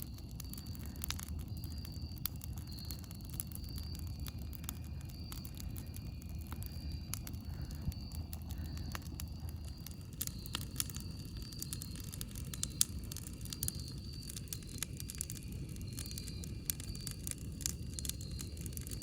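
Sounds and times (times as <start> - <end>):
low steady rumble: 0.0 - 17.7
wood fire crackling and popping: 0.0 - 19.0.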